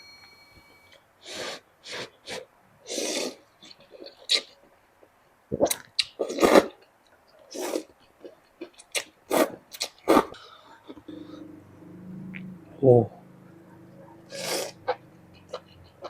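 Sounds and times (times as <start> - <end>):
person slurping noodle soup: 1.3 - 3.4, 7.5 - 7.9, 14.3 - 14.9.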